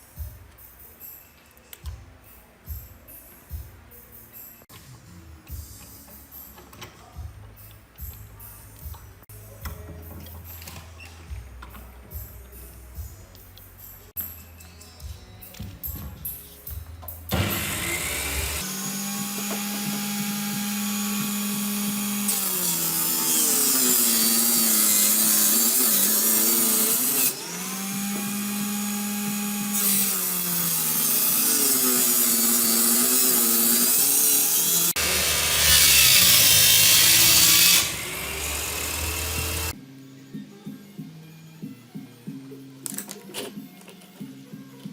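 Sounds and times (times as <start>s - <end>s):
power tool cutting or grinding: 17.3s - 39.8s.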